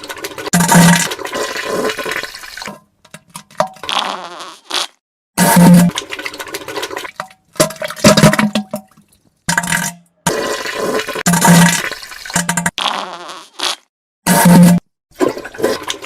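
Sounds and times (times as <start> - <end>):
wet farts and splatters: 0.0 - 2.8, 3.4 - 8.8, 9.6 - 16.0.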